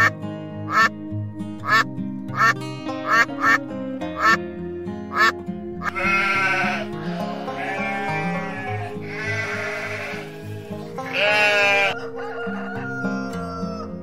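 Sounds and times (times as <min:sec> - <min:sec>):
background music: 0:00.0 - 0:14.0
duck quacking: 0:00.7 - 0:00.9, 0:01.6 - 0:04.4, 0:05.1 - 0:12.0
sheep bleating: 0:05.2 - 0:12.0.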